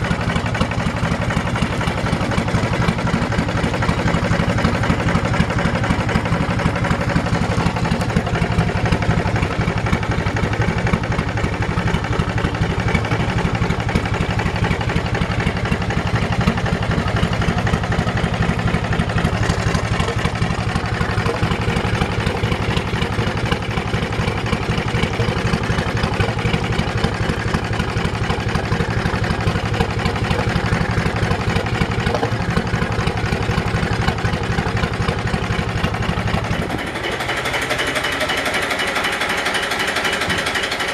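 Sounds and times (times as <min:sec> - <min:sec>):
boat engine idling: 0:00.0 - 0:40.9.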